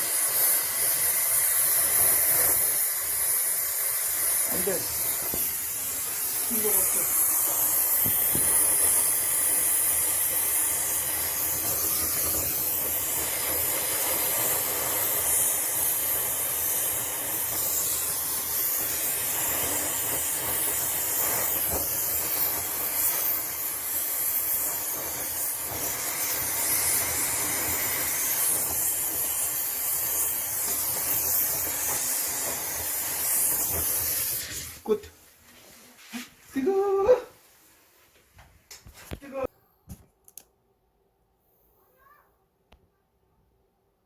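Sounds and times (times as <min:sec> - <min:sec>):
gas torch flame hissing: 0:00.0 - 0:35.1.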